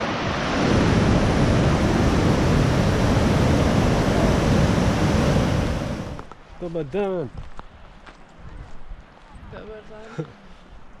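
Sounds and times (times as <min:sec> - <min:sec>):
waterfall rushing: 0:00.0 - 0:06.2.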